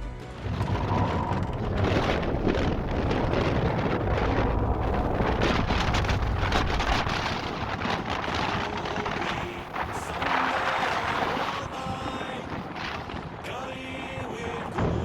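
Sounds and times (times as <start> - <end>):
heavy low rumble: 0.0 - 10.5
wind buffeting microphone: 0.3 - 15.0
rushing and splashing water: 0.4 - 15.0.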